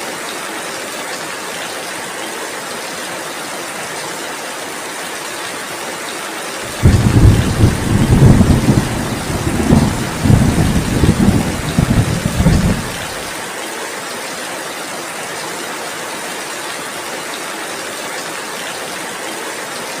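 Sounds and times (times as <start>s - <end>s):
heavy rain hissing: 6.6s - 13.8s
thunder rumbling: 6.7s - 13.4s.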